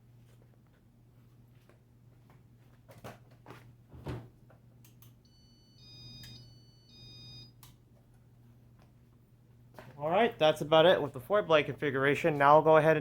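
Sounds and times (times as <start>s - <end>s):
faint electrical hum: 0.0s - 13.0s
electronic beeping tune: 5.3s - 7.5s.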